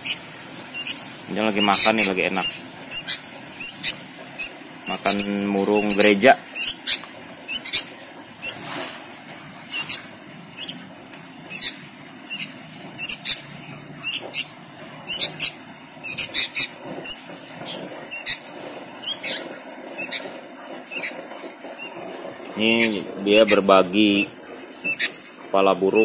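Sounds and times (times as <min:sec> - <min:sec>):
bird chirping: 0:00.0 - 0:08.6, 0:09.7 - 0:26.0.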